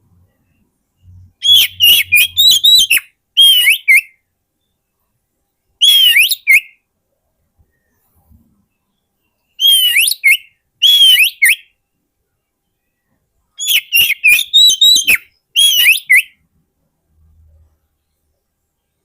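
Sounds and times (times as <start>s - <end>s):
bird singing whistled notes: 0.3s - 5.0s, 5.6s - 6.8s, 8.7s - 12.0s, 12.6s - 16.4s.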